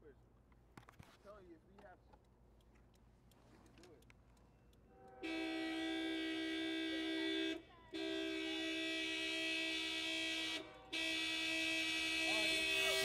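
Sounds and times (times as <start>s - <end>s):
car horn two-note blasts: 4.9s - 13.0s.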